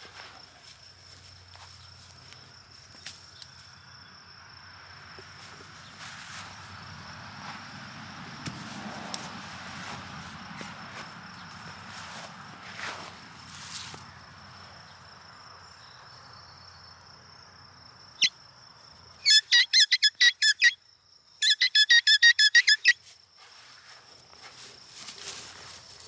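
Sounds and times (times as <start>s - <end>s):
loud high-pitched squeaks: 19.2s - 20.8s, 21.4s - 23.0s.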